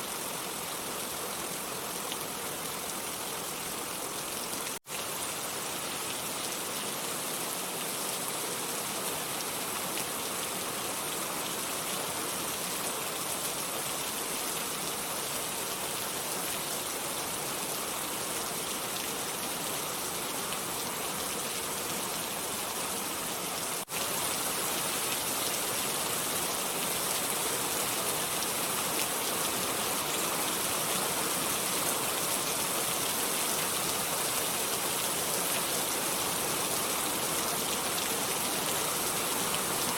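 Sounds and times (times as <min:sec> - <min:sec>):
dense rain falling: 0:00.0 - 0:39.9.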